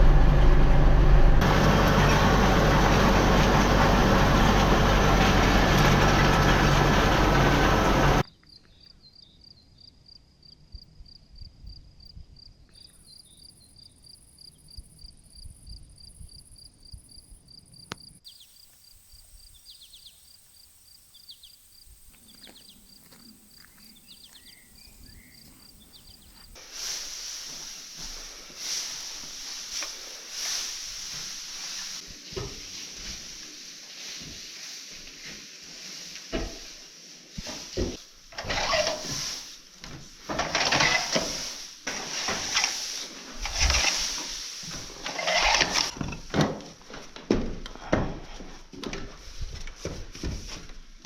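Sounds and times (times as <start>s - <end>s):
loud steady mechanical noise: 0.0s - 8.2s
insect chirping: 8.4s - 26.6s.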